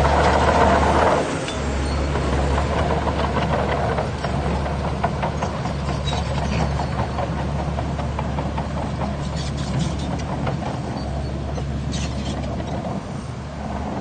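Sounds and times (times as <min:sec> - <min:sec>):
heavy diesel engine running: 0:00.0 - 0:14.0
light clicks and clanks: 0:02.5 - 0:13.0.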